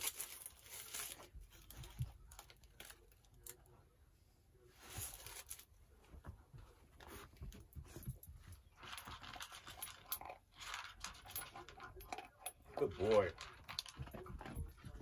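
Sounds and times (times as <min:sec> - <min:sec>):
foil wrapper crinkling: 0:00.0 - 0:01.8.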